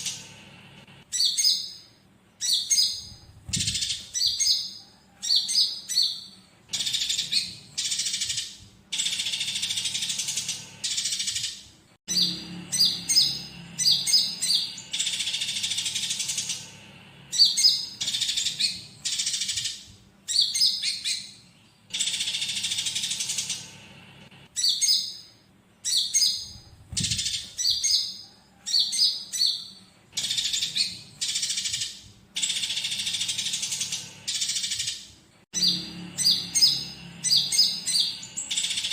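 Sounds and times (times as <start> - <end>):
bird song chips and trills: 0.0 - 38.9
sparrow fighting calls: 1.0 - 23.9, 24.5 - 35.0, 35.6 - 38.9
rasping bird chatter: 6.7 - 19.9, 21.9 - 25.1, 30.2 - 35.0, 35.6 - 38.9.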